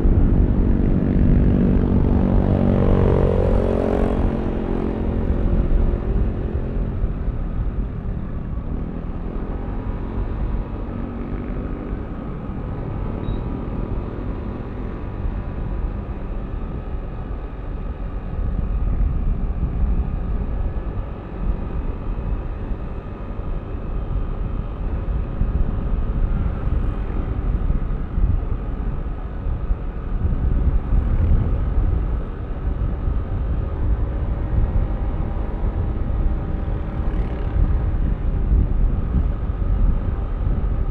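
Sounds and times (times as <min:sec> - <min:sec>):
low rumble of air and road: 0:00.0 - 0:40.9.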